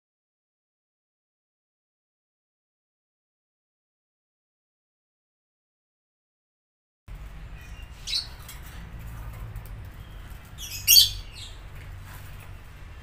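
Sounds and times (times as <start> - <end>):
small bird chirping: 7.5 - 8.6, 9.9 - 11.6.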